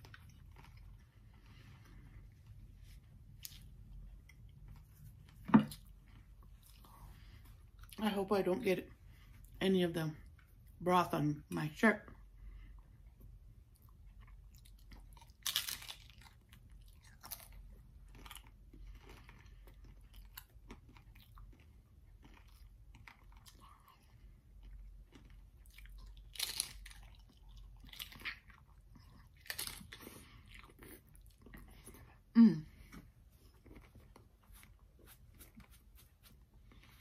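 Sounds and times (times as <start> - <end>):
quiet chewing: 0.0 - 8.0, 12.6 - 37.0
crunching crisp shell: 15.3 - 16.4.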